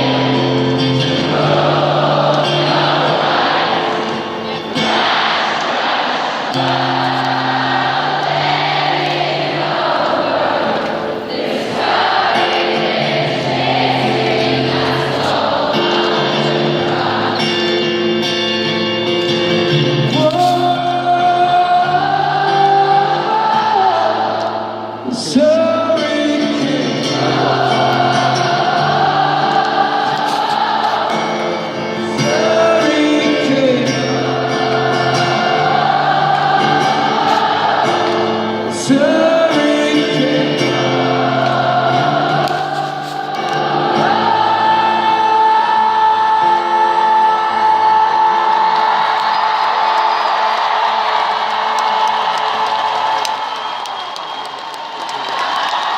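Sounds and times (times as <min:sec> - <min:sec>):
crowd singing along: 0:00.0 - 0:54.4.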